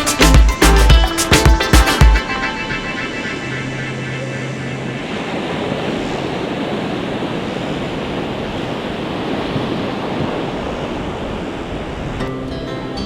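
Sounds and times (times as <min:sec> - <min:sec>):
music: 0:00.0 - 0:04.7, 0:12.2 - 0:13.0
ocean surf on a beach: 0:00.0 - 0:13.0
wind on microphone: 0:02.2 - 0:13.0.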